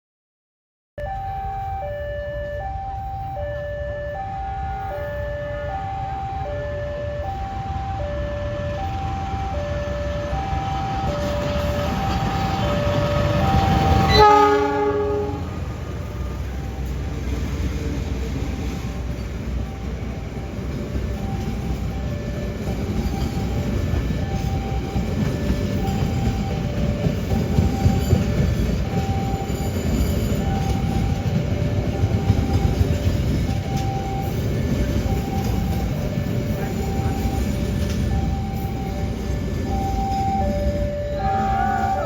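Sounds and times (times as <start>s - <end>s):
two-tone crossing alarm: 1.0s - 42.0s
train rumbling past: 2.6s - 42.0s
train horn blast: 12.4s - 16.6s
train wheel clicks: 37.2s - 40.8s.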